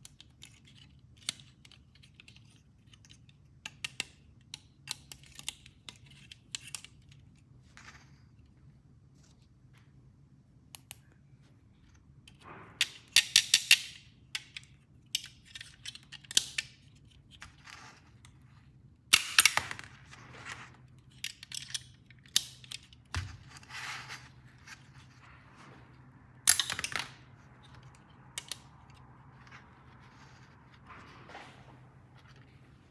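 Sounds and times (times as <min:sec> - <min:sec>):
plastic toy pieces clicking: 0:21.1 - 0:22.9.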